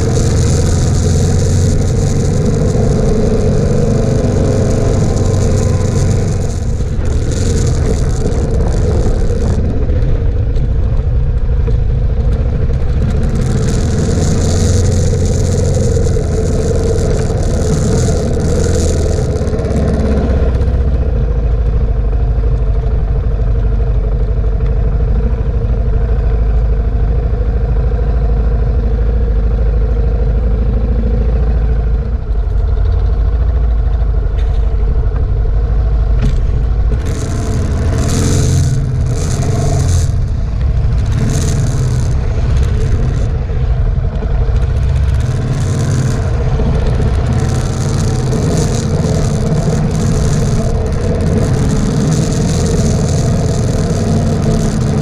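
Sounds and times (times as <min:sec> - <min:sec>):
wind rushing over microphone: 0:00.0 - 0:26.1
motorcycle engine running: 0:00.0 - 0:55.0.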